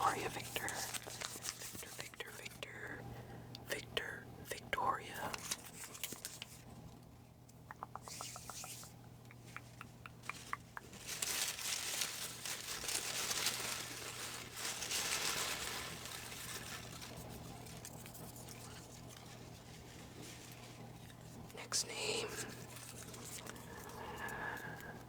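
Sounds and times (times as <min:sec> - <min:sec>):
paper rustling and crinkling: 0:00.0 - 0:02.4, 0:05.2 - 0:06.7, 0:10.3 - 0:21.6, 0:22.3 - 0:24.8.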